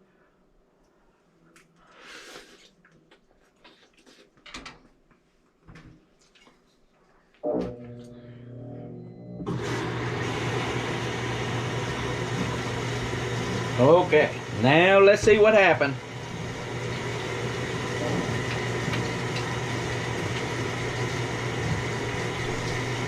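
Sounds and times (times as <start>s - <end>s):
washing machine motor hum: 7.7s - 23.0s.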